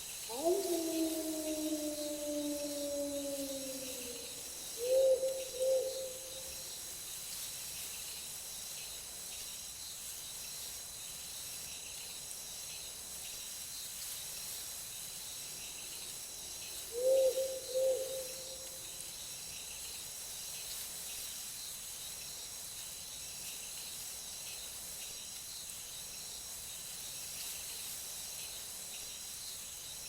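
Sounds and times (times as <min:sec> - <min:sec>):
insects trilling: 0:00.0 - 0:30.0
long falling howl: 0:00.3 - 0:06.2
owl hooting: 0:00.3 - 0:06.5, 0:16.9 - 0:18.7.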